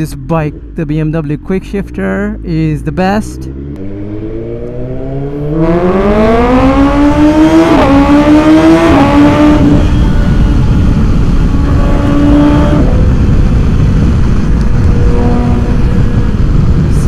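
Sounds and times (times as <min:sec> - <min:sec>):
motorcycle engine accelerating: 0:00.0 - 0:17.0
wind rushing over microphone: 0:03.5 - 0:17.0.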